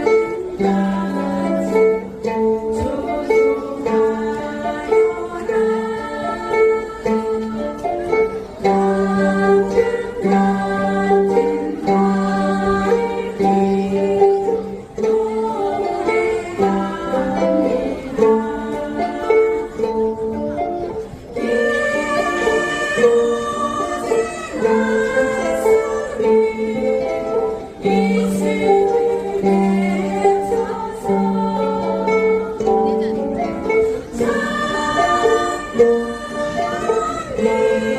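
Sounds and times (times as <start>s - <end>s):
people singing: 0.0s - 37.9s
ukuleles strumming chords: 0.0s - 37.9s.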